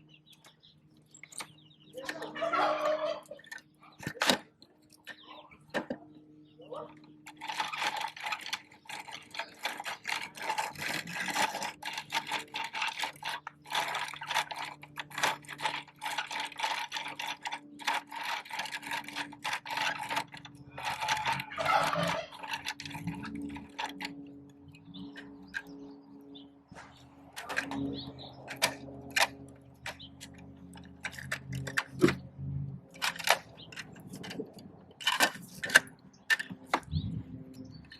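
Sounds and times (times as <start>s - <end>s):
plastic toy truck rattling: 1.4s - 6.0s, 7.0s - 25.7s, 27.4s - 32.2s, 32.9s - 37.1s.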